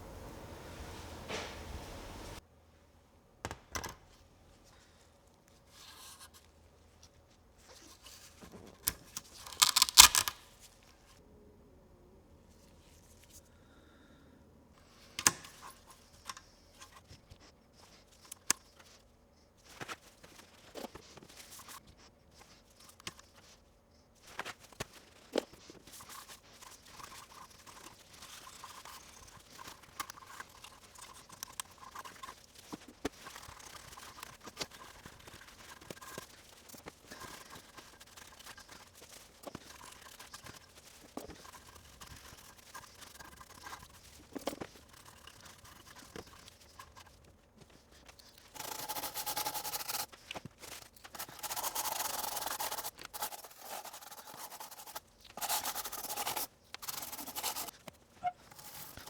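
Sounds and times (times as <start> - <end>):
scratchy scrubbing on circuit board: 24.5 - 59.0.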